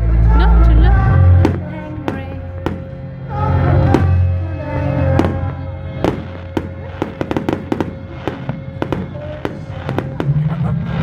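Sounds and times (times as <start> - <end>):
background music: 0.0 - 11.0
fireworks bangs: 1.0 - 11.0
fireworks crackling pops: 1.4 - 3.0, 5.1 - 11.0.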